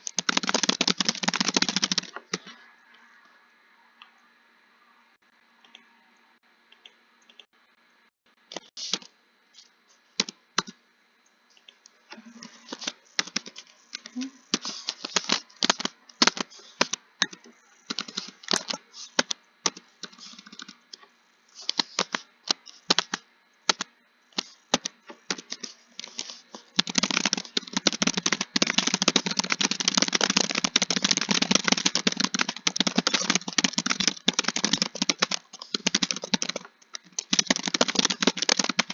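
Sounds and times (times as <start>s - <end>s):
typing on computer keyboard: 0.0s - 2.5s, 12.7s - 21.0s, 21.6s - 38.9s.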